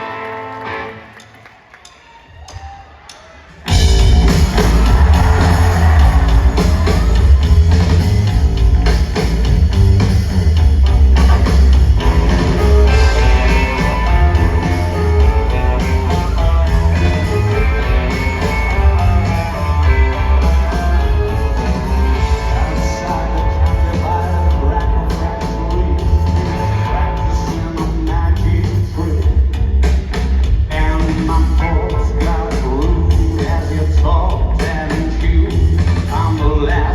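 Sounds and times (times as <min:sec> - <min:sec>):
electric guitar: 0:00.0 - 0:01.5, 0:03.7 - 0:29.2
rock band playing: 0:00.0 - 0:01.6, 0:03.5 - 0:36.9
drums: 0:00.0 - 0:36.9
heavy bass: 0:03.7 - 0:36.9.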